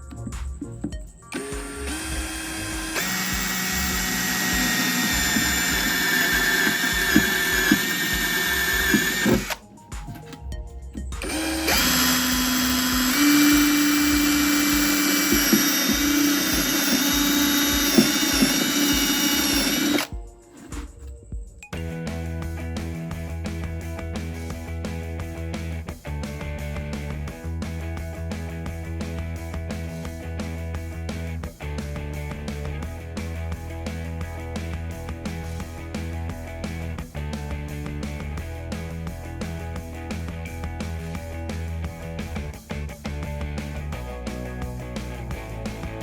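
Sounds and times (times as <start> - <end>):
background music with steady beat: 0.0 - 46.0
electric drill boring: 1.3 - 9.6, 11.2 - 20.1.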